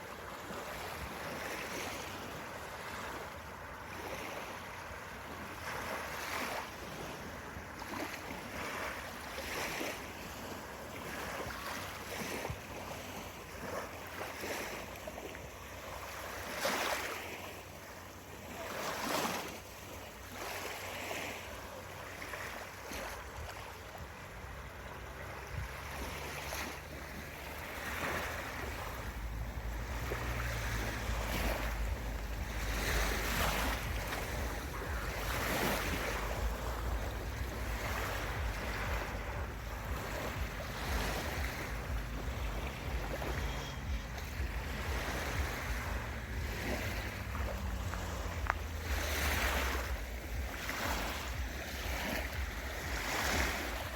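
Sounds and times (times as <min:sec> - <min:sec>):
sea waves washing onto beach: 0:00.0 - 0:53.9
wind buffeting microphone: 0:23.2 - 0:53.9.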